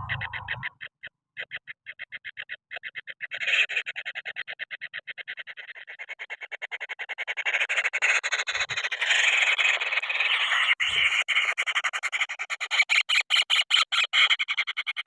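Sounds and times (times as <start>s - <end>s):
kingfisher chicks begging calls: 0.0s - 0.7s.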